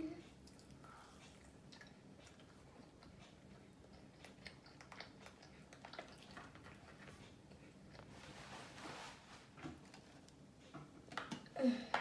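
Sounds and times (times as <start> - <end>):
chewing food: 0.2 - 8.2
mouth clicks and smacks: 0.4 - 6.9.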